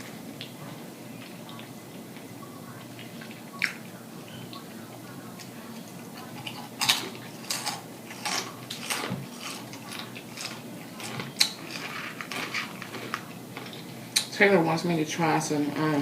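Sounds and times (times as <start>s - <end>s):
crunchy chips being chewed: 6.2s - 14.3s.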